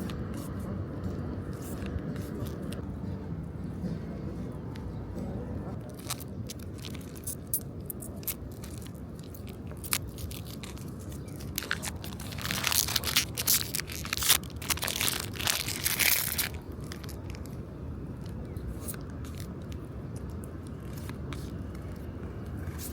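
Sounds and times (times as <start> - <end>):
foil wrappers crinkling: 5.8 - 17.6
foil packs tearing open: 9.8 - 17.4.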